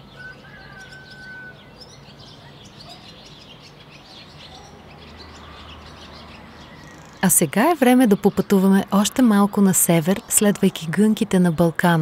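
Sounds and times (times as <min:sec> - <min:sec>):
birds chirping: 0:00.0 - 0:12.0
whistled bird note: 0:00.2 - 0:01.7.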